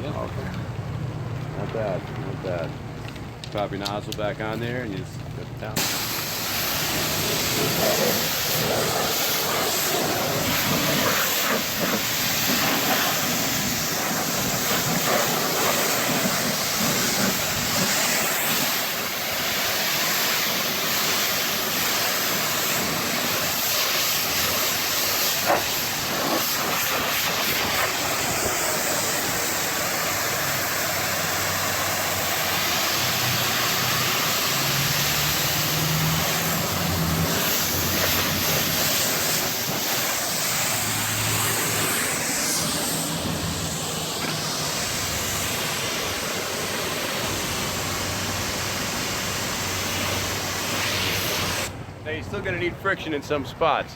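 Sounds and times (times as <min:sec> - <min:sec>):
pressure washer spraying water: 0:05.8 - 0:51.7.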